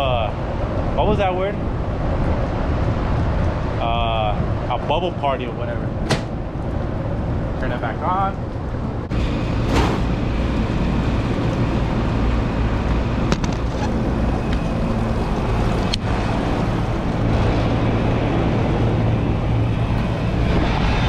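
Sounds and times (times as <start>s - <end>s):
condensing unit humming: 0.0s - 21.0s.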